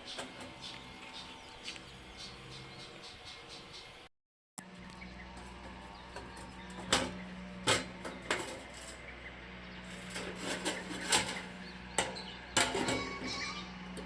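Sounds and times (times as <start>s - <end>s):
metal grill parts clanking: 0.0s - 0.8s, 5.2s - 14.0s
steady low hum: 0.0s - 14.0s.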